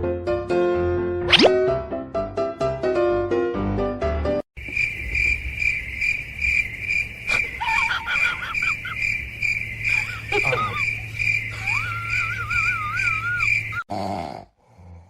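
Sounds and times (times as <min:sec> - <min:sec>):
piano music: 0:00.0 - 0:04.4
cricket chirping: 0:04.6 - 0:13.8
wavering squeaky calls: 0:07.3 - 0:13.8.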